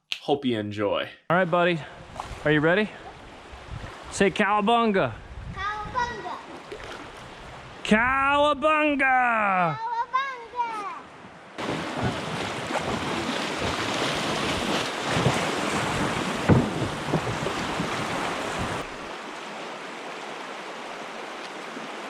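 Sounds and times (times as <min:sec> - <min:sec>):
flowing water: 0:01.4 - 0:08.0, 0:09.6 - 0:22.0
wind buffeting microphone: 0:03.0 - 0:04.2, 0:05.1 - 0:08.2, 0:11.2 - 0:19.1.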